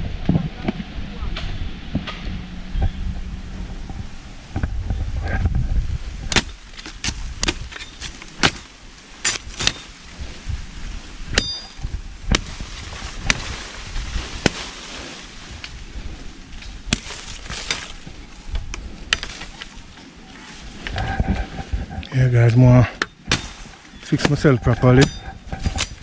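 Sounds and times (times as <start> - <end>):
low wind rumble: 0.0 - 26.0
tool chopping tree limbs: 6.2 - 10.1, 11.3 - 15.7, 16.6 - 20.0, 22.4 - 26.0.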